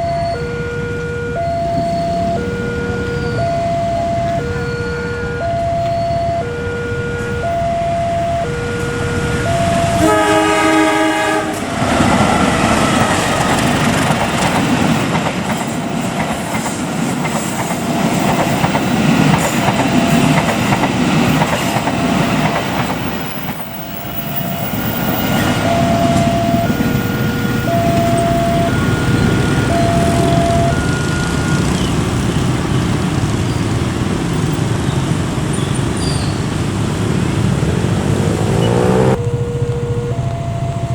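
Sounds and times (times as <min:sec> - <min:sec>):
two-tone crossing alarm: 0:00.0 - 0:32.5, 0:37.8 - 0:40.9
train rumble and wheel clatter: 0:00.0 - 0:40.9
train horn: 0:06.5 - 0:12.6.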